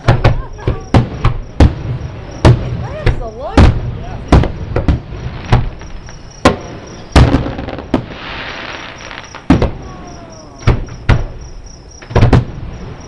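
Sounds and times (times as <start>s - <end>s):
fireworks shells bursting: 0.0s - 9.9s
fireworks crackling: 0.0s - 13.0s.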